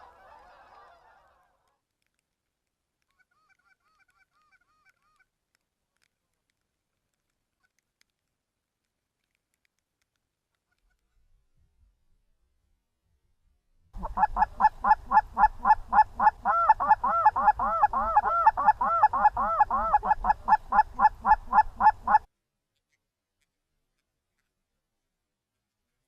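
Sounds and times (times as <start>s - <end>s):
geese honking: 14.0s - 22.3s.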